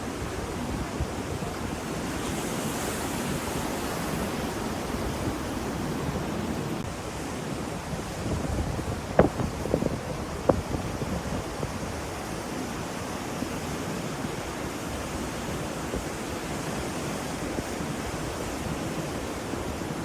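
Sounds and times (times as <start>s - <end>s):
ocean surf washing: 0.0s - 20.0s
wind rumbling on microphone: 0.0s - 20.0s.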